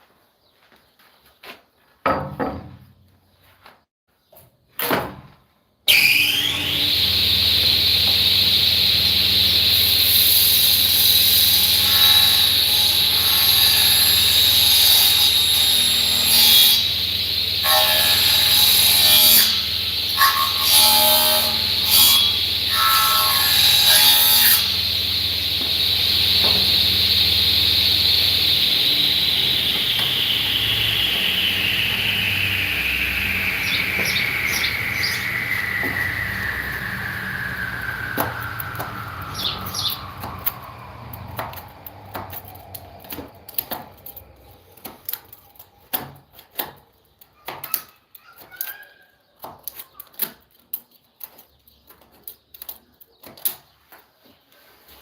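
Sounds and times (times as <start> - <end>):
power saw cutting wood: 5.9 - 46.7.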